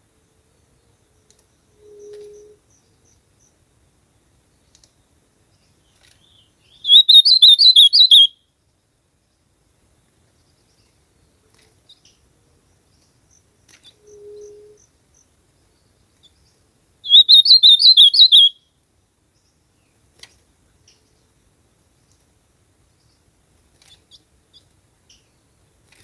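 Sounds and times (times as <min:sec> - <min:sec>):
bird singing warbled phrase: 0:06.3 - 0:08.3, 0:17.1 - 0:18.6
faint short bird notes: 0:06.3 - 0:08.3, 0:17.1 - 0:18.5.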